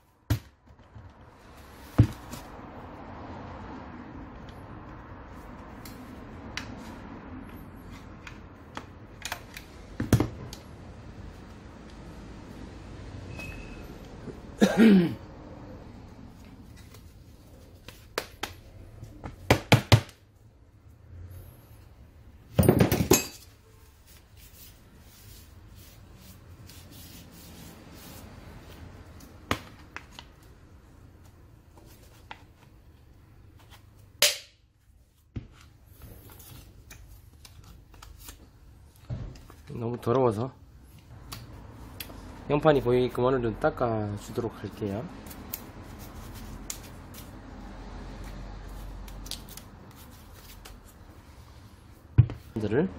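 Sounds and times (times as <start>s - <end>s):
short falling squeak: 13.3s - 13.9s
tools knocking and clinking: 22.6s - 23.5s.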